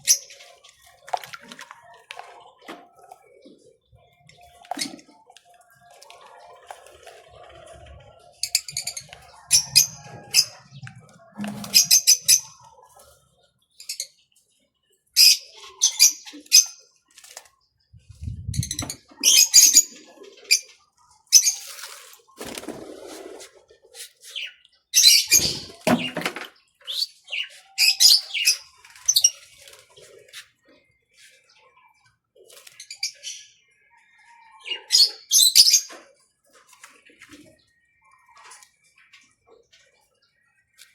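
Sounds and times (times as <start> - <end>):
birds splashing wings in water: 0.1 - 3.2, 21.4 - 23.6.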